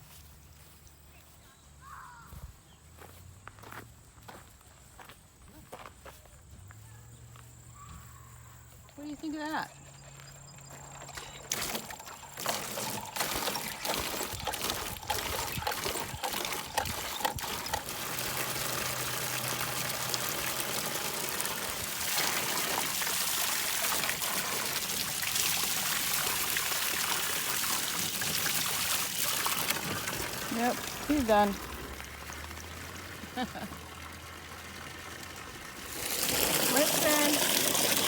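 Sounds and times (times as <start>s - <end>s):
water splashing and trickling: 9.0s - 38.0s.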